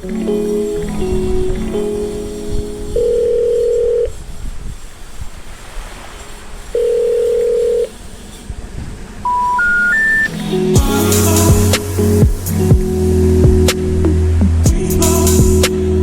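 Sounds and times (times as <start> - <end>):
long telephone tones: 2.9 - 4.1, 6.8 - 7.9, 9.3 - 10.3
short rising beeps: 9.2 - 10.4.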